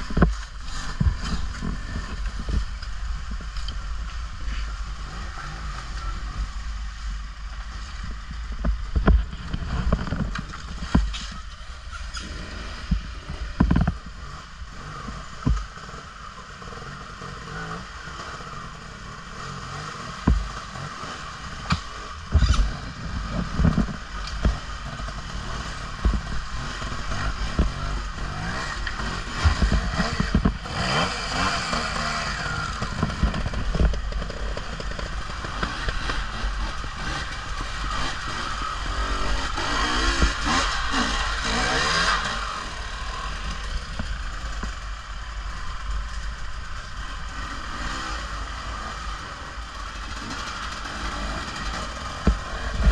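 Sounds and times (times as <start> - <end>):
motorbike running: 0.0 - 52.9
thumps and clatter from bumps: 8.0 - 11.5, 12.8 - 14.1, 20.2 - 42.7.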